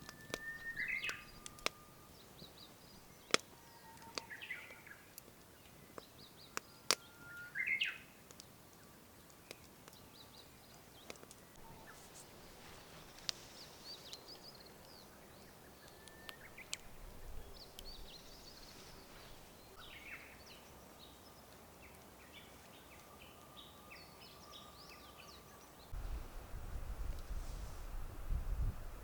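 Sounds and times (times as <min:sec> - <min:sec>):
small birds chirping: 0:00.0 - 0:26.3.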